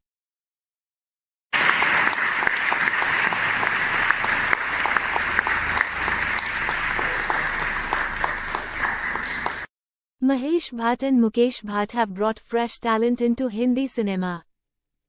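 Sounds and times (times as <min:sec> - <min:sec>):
audience applause: 0:01.5 - 0:09.7.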